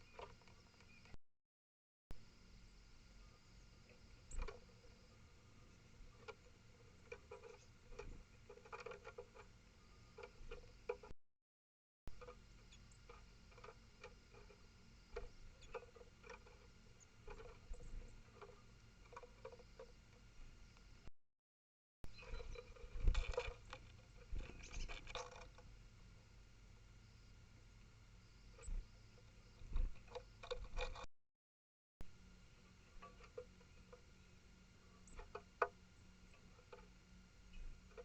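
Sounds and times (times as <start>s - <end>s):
low steady hiss: 2.2s - 11.0s, 25.6s - 30.4s, 32.1s - 38.0s.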